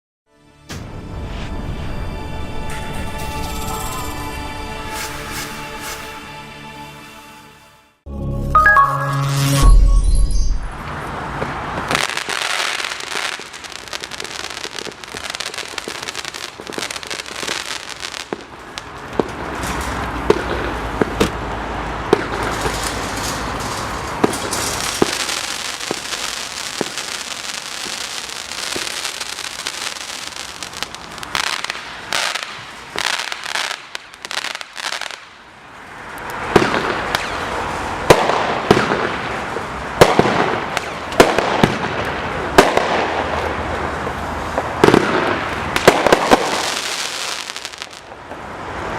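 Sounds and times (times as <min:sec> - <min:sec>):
firework crackle and hiss: 0:10.9 - 0:48.9
firework battery firing: 0:22.1 - 0:35.3, 0:36.5 - 0:43.5, 0:44.6 - 0:48.2.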